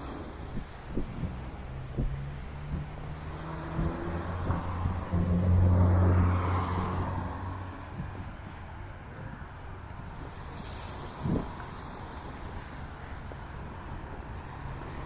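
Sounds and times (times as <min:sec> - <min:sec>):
vehicle engine passing: 0:01.3 - 0:08.6.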